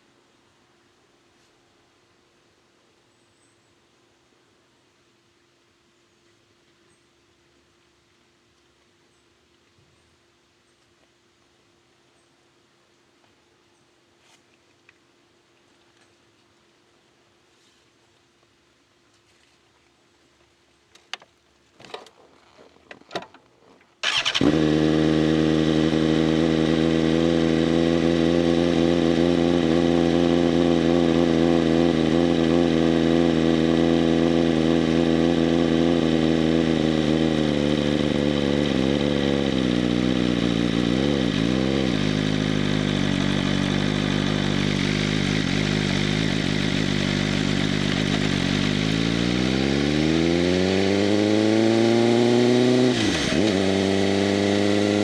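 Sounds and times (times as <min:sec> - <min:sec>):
motorcycle engine idling and revving: 0:24.0 - 0:55.0.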